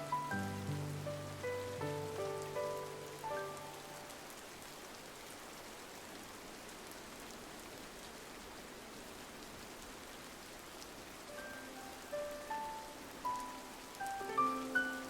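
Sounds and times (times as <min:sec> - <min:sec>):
soft musical notes: 0:00.0 - 0:04.1, 0:11.3 - 0:15.0
rain pattering on window glass: 0:00.0 - 0:15.0.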